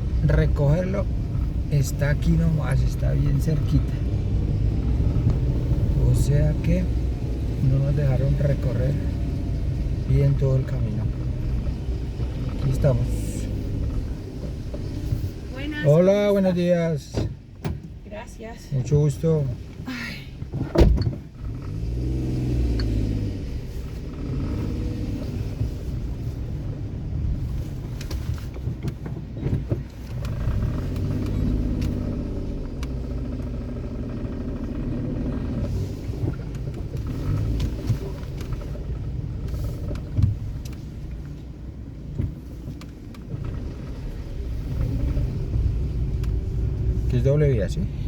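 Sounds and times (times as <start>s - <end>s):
car engine driving: 0.0s - 48.0s
road rumble: 0.0s - 48.0s.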